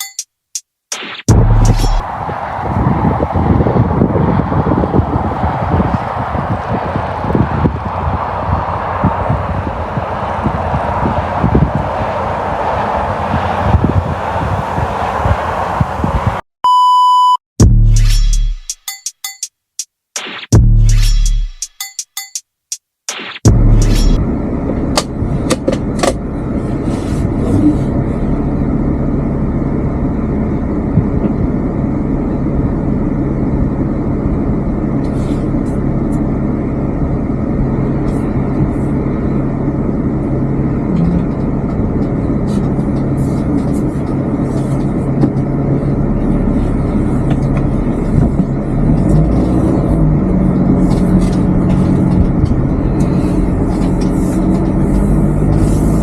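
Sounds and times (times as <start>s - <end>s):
engine and road noise: 0.0s - 18.8s, 20.5s - 21.7s, 23.1s - 56.0s.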